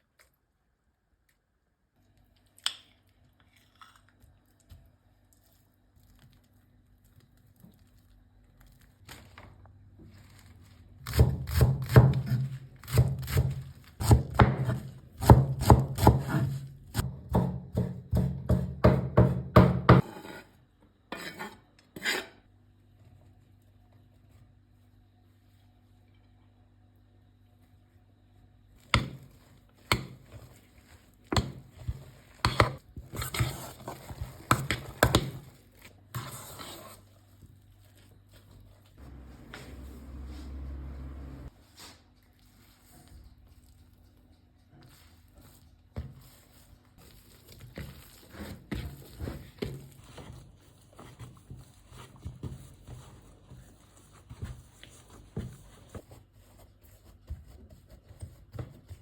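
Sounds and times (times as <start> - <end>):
knife chopping on cutting board: 11.1 - 20.4
scraping or rustling: 30.3 - 56.8.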